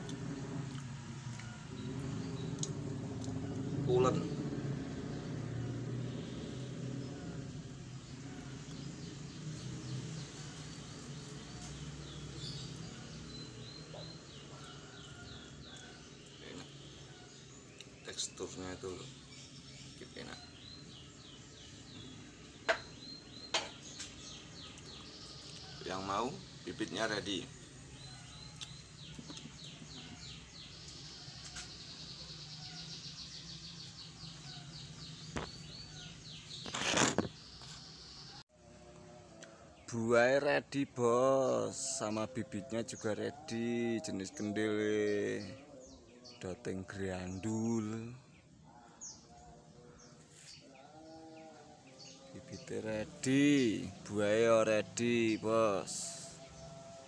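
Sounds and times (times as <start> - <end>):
steady low hum: 0.0 - 36.3
bird chirping: 0.0 - 38.5.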